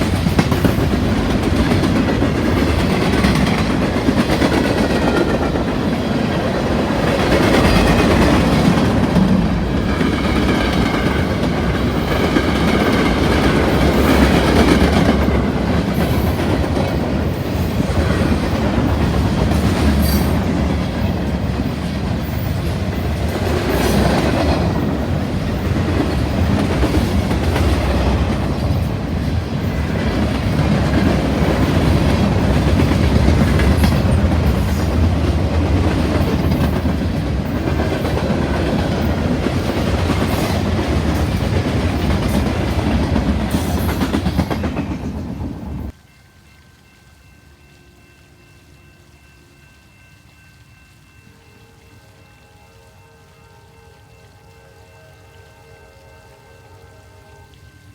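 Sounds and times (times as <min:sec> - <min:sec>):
wheels clacking over rail joints: 0:00.0 - 0:46.0
train rumbling past: 0:00.0 - 0:57.9.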